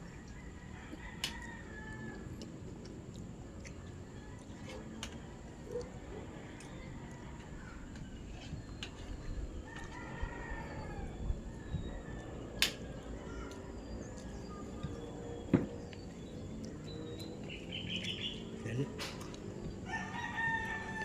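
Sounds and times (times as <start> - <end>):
rooster crowing: 0.2 - 2.5, 9.6 - 13.6, 19.6 - 21.0.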